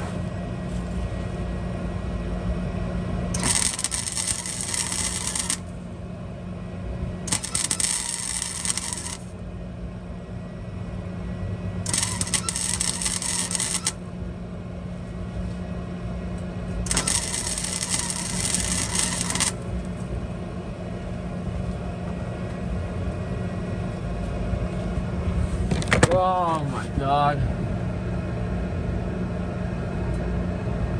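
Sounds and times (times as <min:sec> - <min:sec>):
steady low hum: 0:00.0 - 0:30.9
welder arc crackling: 0:03.4 - 0:06.0, 0:07.2 - 0:09.4, 0:11.9 - 0:14.1, 0:16.8 - 0:20.1.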